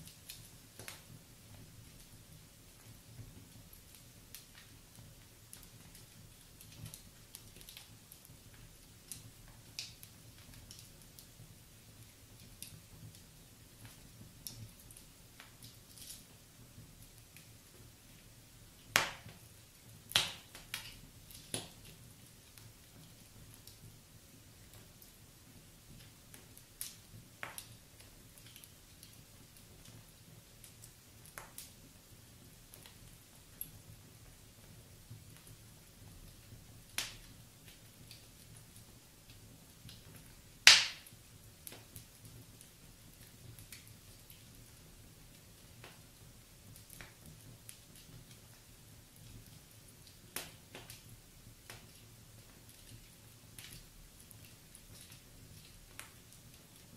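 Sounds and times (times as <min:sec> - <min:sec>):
wood fire crackling: 0:00.0 - 0:56.9
sharp pops of fire: 0:18.8 - 0:23.9, 0:36.3 - 0:38.7, 0:39.8 - 0:44.6, 0:49.1 - 0:56.9.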